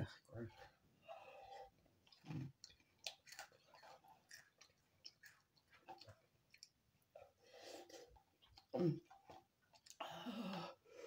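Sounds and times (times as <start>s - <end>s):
faint chewing of noodles: 0.0s - 11.0s.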